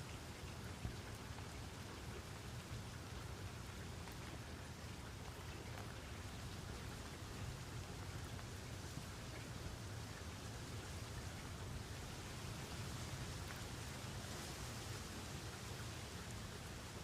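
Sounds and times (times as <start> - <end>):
steady rain hissing: 0.0 - 17.0
raindrop ticks: 0.1 - 10.2.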